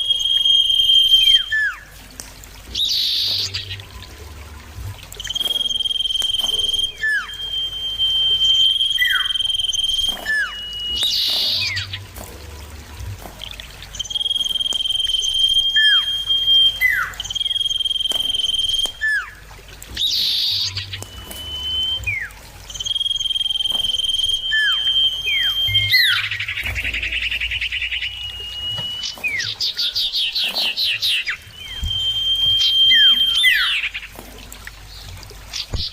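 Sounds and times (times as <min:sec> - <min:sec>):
bird singing clear whistles: 0:00.0 - 0:02.0, 0:02.7 - 0:04.1, 0:05.1 - 0:12.6, 0:13.4 - 0:34.2.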